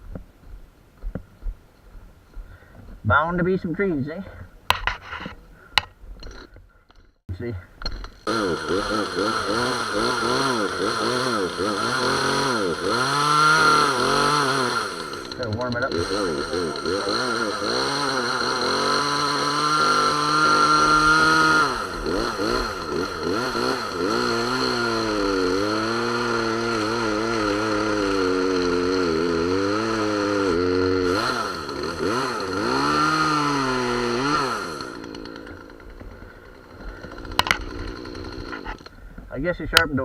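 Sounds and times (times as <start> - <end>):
chainsaw revving and cutting: 8.2 - 38.9.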